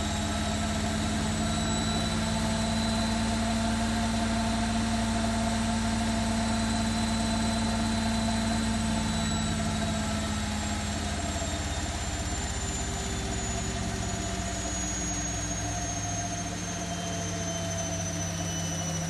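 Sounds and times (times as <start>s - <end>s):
washing machine spinning: 0.0s - 14.5s.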